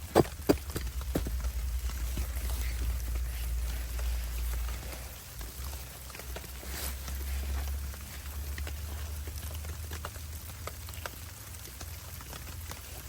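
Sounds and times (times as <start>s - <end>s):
low rumble: 0.0s - 9.8s
precipitation pattering: 0.0s - 13.0s
steady hiss: 0.0s - 13.0s.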